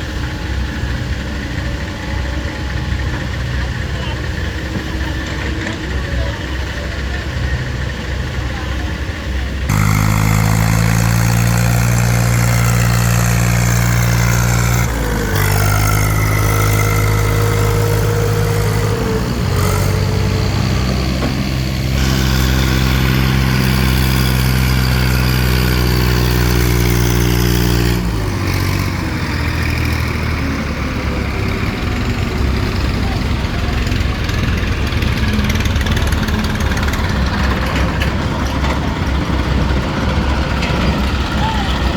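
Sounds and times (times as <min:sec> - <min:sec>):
tractor engine working under load: 0:00.0 - 0:41.9.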